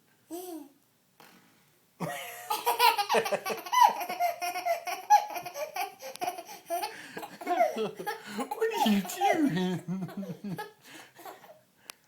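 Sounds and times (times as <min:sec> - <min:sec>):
girl laughing: 0:02.0 - 0:11.4.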